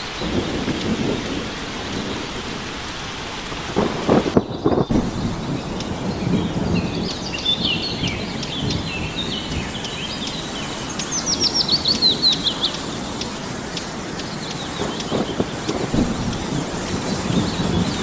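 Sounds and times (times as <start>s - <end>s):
steady background hiss: 0.0s - 18.0s
songbird chirping: 4.4s - 18.0s.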